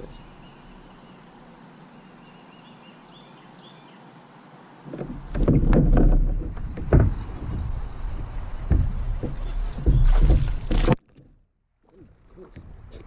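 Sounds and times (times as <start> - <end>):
kayak handling rumble and knocks: 4.9 - 13.0.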